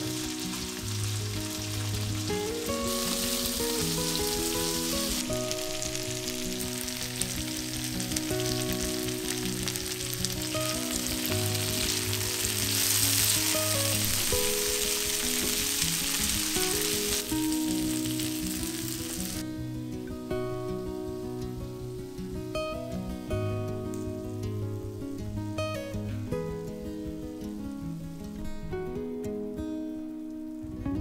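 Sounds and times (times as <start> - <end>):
vegetables sizzling in a pan: 0.0 - 19.4
soft background music: 0.0 - 31.0.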